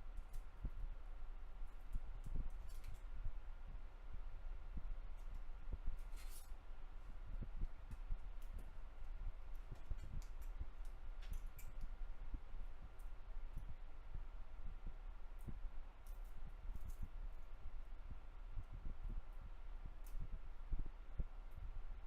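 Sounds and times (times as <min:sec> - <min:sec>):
steady low hum: 0:00.0 - 0:22.0
small clicks and taps of tools: 0:01.6 - 0:03.1, 0:07.4 - 0:12.0, 0:20.0 - 0:20.3.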